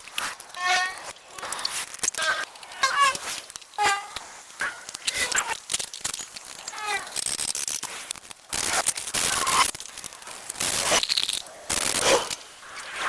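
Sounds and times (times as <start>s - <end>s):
rasping scraping: 0.2s - 5.3s.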